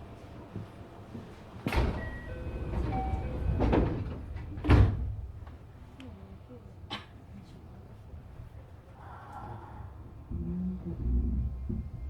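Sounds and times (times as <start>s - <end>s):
train doors sliding shut: 1.6s - 5.6s
short door tones: 1.7s - 5.1s.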